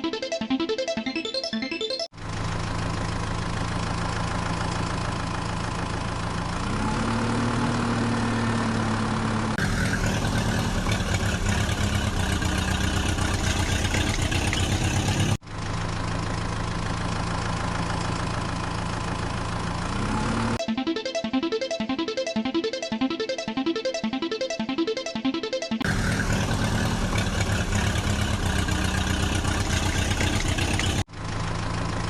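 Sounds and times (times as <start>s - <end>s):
heavy vehicle engine idling: 2.2s - 6.7s, 8.7s - 20.0s, 25.9s - 32.0s
engine pulsing chug: 8.7s - 20.6s, 25.8s - 32.0s.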